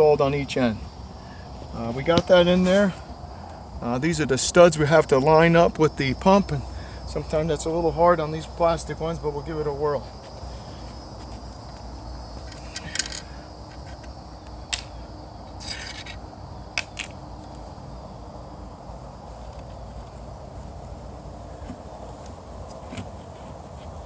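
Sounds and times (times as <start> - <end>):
high insect trill: 0.0 - 24.0
hard parts scraping: 12.4 - 14.9, 15.5 - 16.2.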